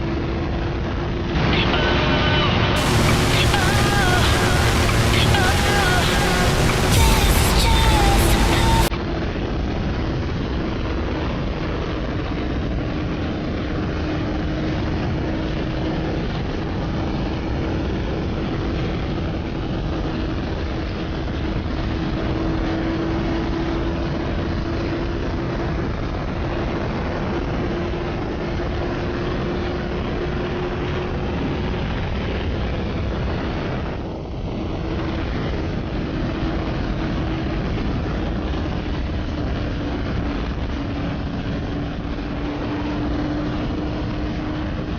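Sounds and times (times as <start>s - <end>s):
wind rush on microphone: 2.8s - 44.9s.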